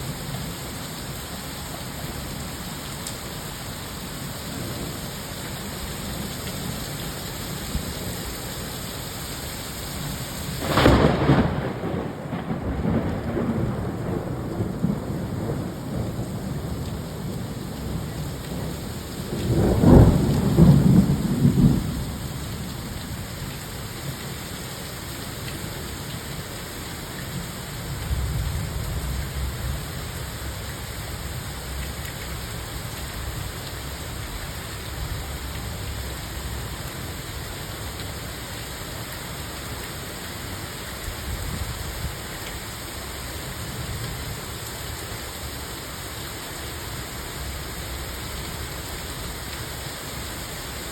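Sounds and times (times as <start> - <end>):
steady rain: 0.0 - 50.9
thunder rumbling: 10.6 - 22.3.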